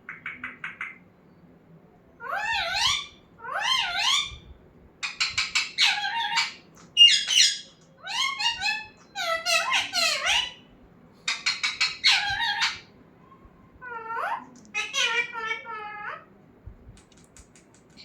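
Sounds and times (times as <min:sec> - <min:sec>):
parrot warbling calls: 0:02.2 - 0:04.4, 0:05.0 - 0:10.6, 0:11.3 - 0:12.9, 0:13.8 - 0:16.3.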